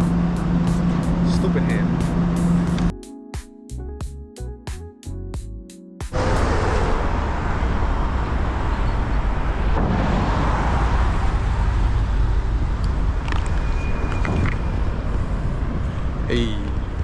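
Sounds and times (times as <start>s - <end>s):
city traffic: 0.0s - 2.9s, 6.1s - 17.0s
deep rumble: 6.2s - 17.0s
wind rushing on microphone: 6.2s - 17.0s.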